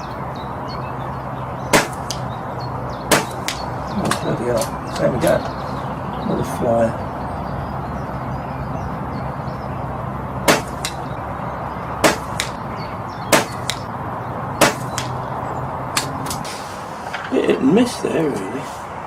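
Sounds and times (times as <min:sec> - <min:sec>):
sharp cracks: 0:01.7 - 0:02.4, 0:03.1 - 0:05.6, 0:10.4 - 0:11.2, 0:12.0 - 0:12.6, 0:13.3 - 0:13.9, 0:14.6 - 0:15.3, 0:15.9 - 0:16.6.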